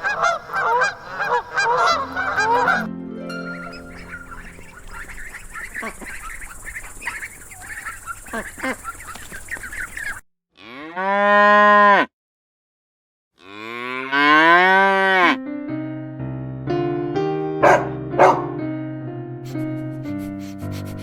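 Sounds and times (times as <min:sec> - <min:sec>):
piano music: 0:01.6 - 0:05.9, 0:15.3 - 0:21.0
cow mooing: 0:10.6 - 0:12.1, 0:13.4 - 0:15.4.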